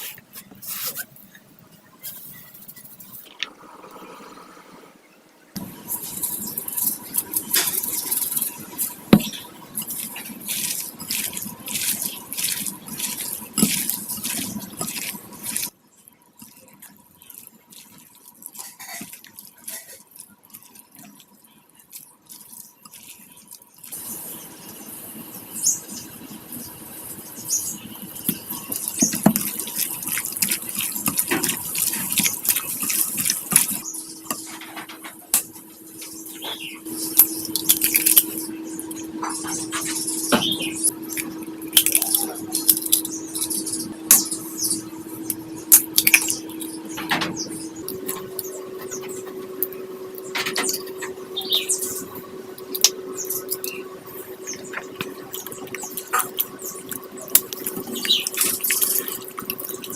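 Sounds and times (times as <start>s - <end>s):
water splashing in a sink: 55.4s - 59.9s.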